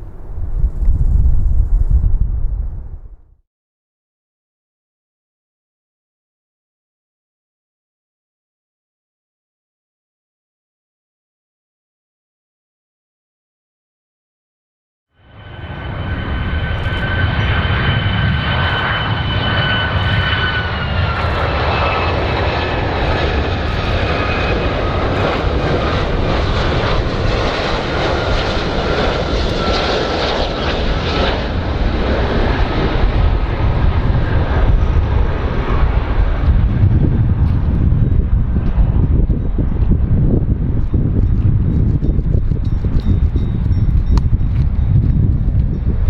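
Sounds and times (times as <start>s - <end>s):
aircraft engines rumbling and whining: 0.0s - 3.2s, 15.2s - 46.0s.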